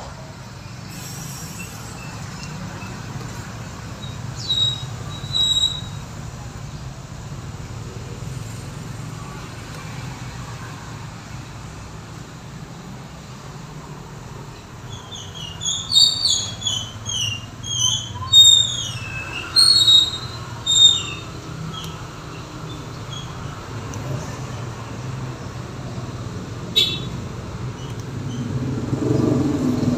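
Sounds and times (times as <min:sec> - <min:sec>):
high squeaky chirps: 0:04.0 - 0:06.0, 0:14.8 - 0:23.5.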